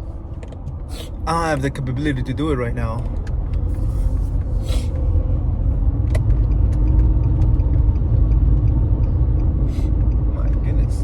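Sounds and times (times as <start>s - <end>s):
car road rumble from inside: 0.0s - 11.0s
engine and tyre hum: 0.0s - 11.0s.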